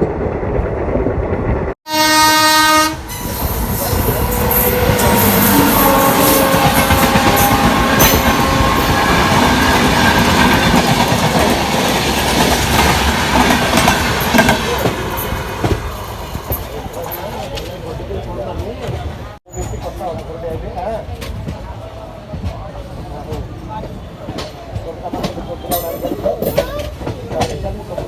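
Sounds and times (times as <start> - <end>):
train running along track: 0.0 - 28.0
train horn blast: 1.9 - 10.2.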